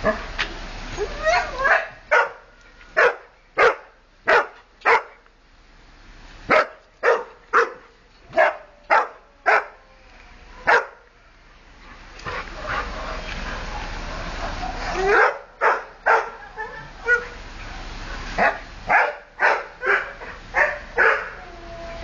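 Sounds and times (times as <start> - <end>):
dog barking excitedly: 1.4 - 5.2, 6.5 - 9.8, 10.6 - 11.1, 12.2 - 17.4, 18.3 - 21.4.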